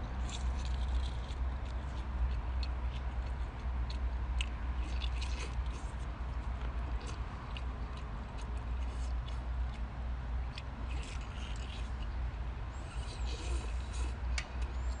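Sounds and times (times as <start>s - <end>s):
steady low hum: 0.0s - 15.0s
wet mouth clicks and chewing: 0.2s - 12.2s.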